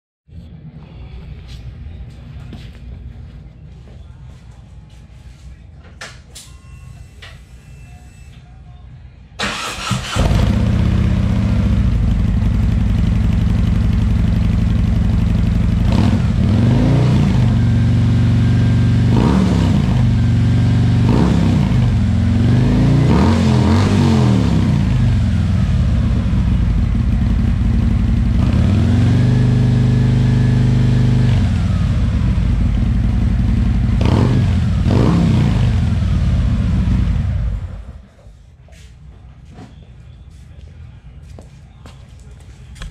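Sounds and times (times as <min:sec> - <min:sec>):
motorcycle starter cranking: 0:09.4 - 0:10.6
motorcycle engine idling and revving: 0:09.5 - 0:38.0.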